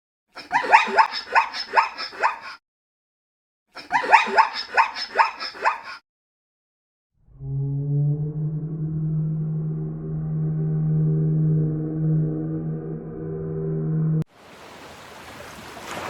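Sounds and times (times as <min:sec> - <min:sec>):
animal yelping: 0:00.5 - 0:02.6, 0:03.8 - 0:06.0
low ringing tone: 0:07.2 - 0:14.2.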